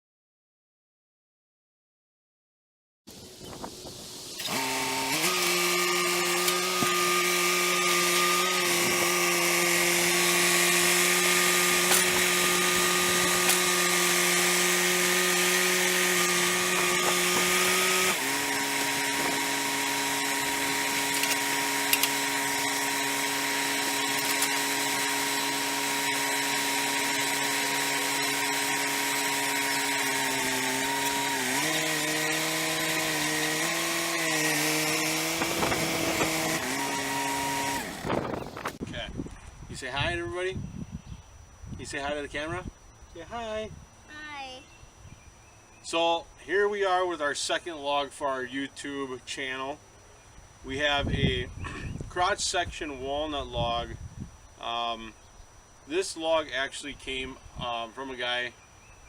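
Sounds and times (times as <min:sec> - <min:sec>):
sawmill engine drone: 0:04.4 - 0:38.8.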